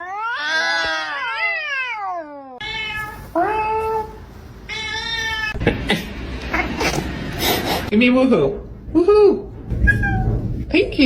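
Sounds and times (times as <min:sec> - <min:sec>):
cat meowing: 0:00.0 - 0:05.6, 0:09.8 - 0:10.5.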